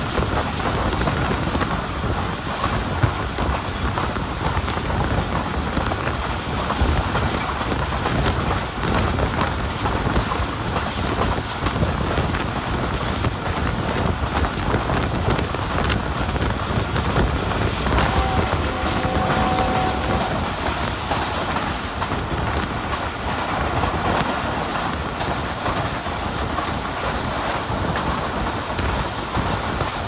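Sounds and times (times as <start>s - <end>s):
train wheel and track noise: 0.0s - 30.0s
wind buffeting microphone: 0.0s - 30.0s.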